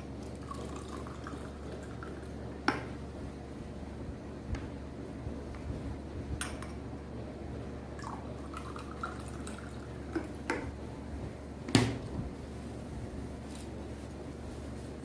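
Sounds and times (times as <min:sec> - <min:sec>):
liquid pouring and dripping: 0:00.1 - 0:02.9, 0:08.0 - 0:10.7.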